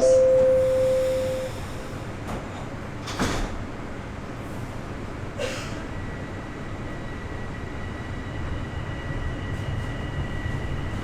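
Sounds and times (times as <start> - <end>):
faint high steady tone: 0.0 - 1.5
subway doors closing with thud: 0.0 - 11.0
train hum: 0.0 - 11.0.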